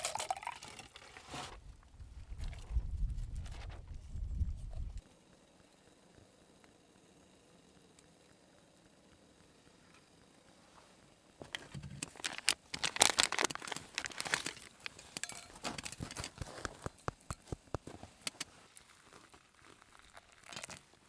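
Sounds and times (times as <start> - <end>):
packaging crinkling and rustling: 11.4 - 21.0.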